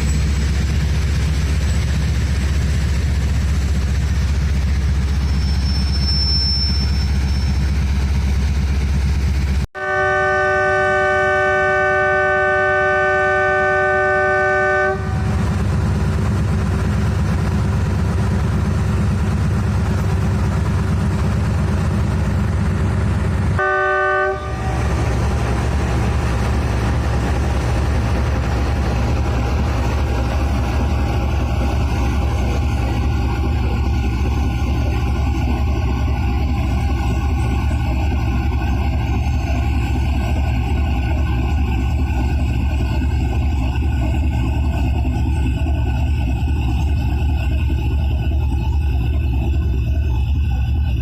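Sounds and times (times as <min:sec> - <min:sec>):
locomotive engine rumble: 0:00.0 - 0:51.0
multi-tone train horn: 0:09.8 - 0:15.5, 0:23.6 - 0:25.6.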